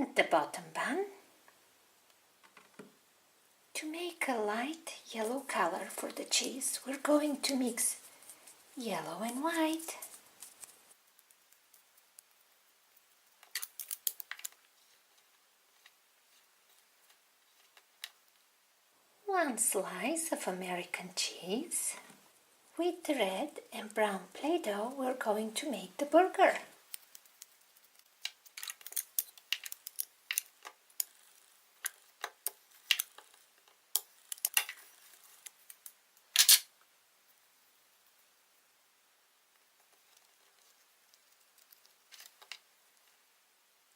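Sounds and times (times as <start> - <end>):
handling ticks of modelling clay: 5.2 - 18.5, 26.0 - 36.4, 39.5 - 43.3
plastic tools clicking on dough: 11.1 - 14.6, 26.8 - 36.0.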